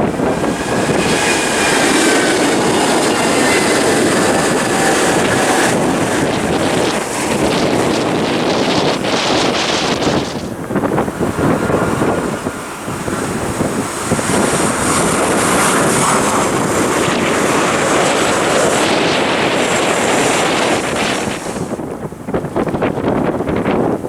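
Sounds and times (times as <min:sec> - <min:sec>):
jet engines roaring and whining: 0:00.0 - 0:24.0
wind buffeting microphone: 0:00.0 - 0:24.0.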